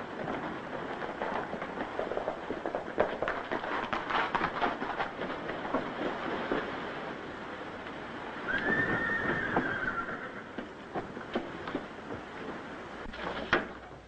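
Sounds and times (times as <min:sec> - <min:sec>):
horses galloping: 0:00.0 - 0:14.0.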